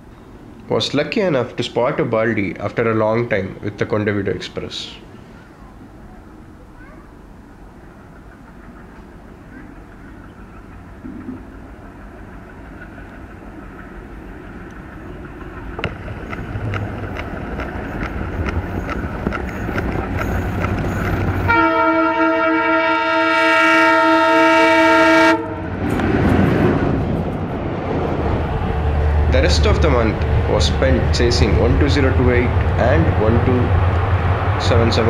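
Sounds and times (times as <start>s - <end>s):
train running rumble: 7.3s - 35.0s
train wheels clicking over rail joints: 12.3s - 21.6s
locomotive horn blast: 21.4s - 25.8s.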